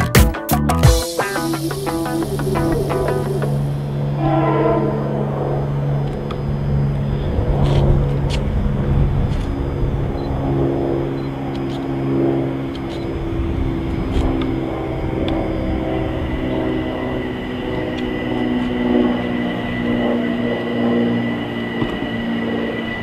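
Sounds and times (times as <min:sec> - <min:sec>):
train rumbling: 0:01.1 - 0:10.3.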